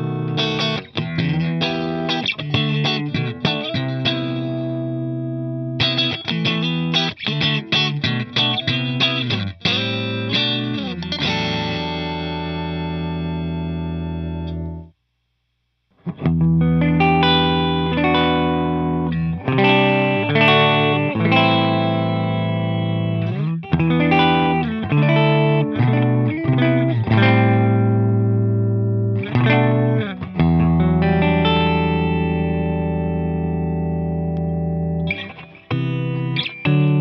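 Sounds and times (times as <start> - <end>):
electric guitar chords and notes: 0.0 - 14.9, 16.0 - 37.0.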